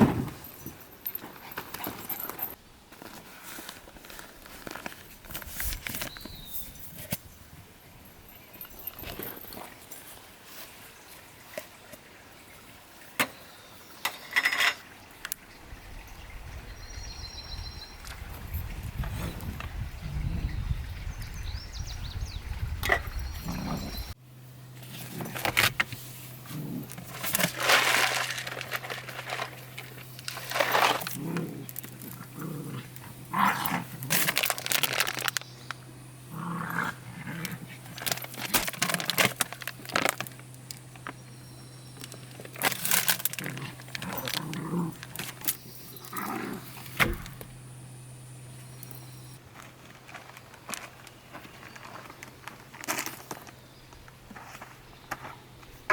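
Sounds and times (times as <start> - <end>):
scuffing and clinking: 0.0 - 3.2
steady low hum: 18.5 - 49.8.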